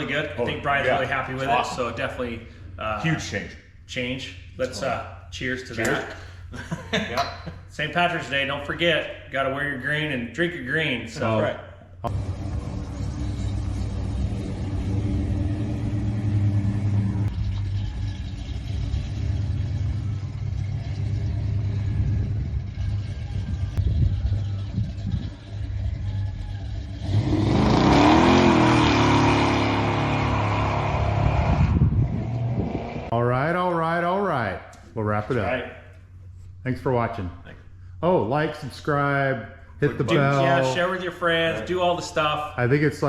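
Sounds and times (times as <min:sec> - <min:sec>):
car engine rumbling and revving: 0:12.0 - 0:33.2.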